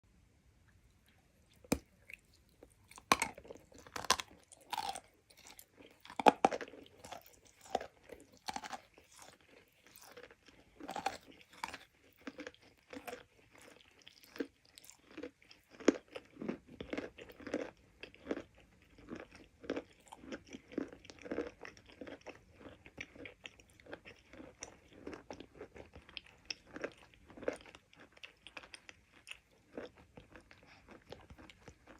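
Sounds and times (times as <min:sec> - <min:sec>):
rapid crunching chews: 0:01.1 - 0:31.9.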